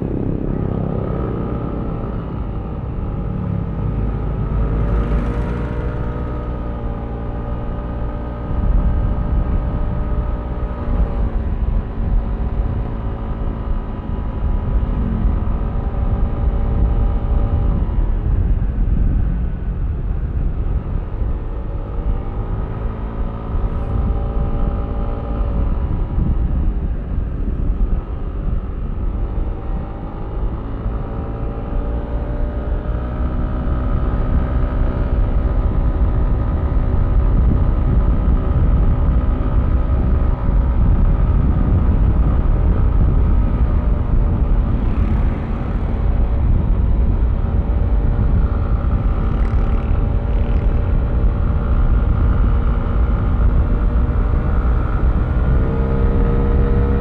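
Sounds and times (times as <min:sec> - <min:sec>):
wind rumble on microphone: 0:00.0 - 0:57.0
scooter engine revving: 0:04.6 - 0:06.3.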